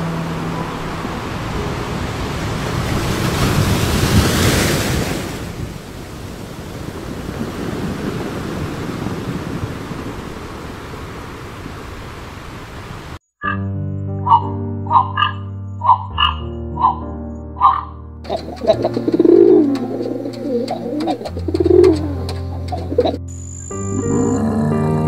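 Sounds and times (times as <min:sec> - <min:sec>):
sea waves breaking on beach: 0:00.1 - 0:13.2.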